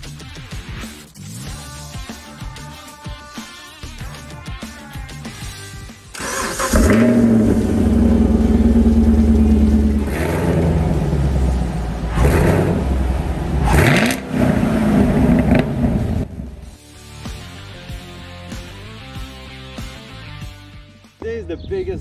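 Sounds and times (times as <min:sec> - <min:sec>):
car engine starting and revving: 0:06.1 - 0:16.8
car engine idling: 0:06.2 - 0:16.8.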